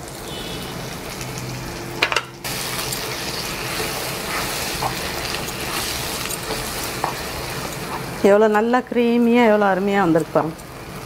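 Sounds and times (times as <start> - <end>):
potatoes sizzling in oil: 0.0 - 11.0.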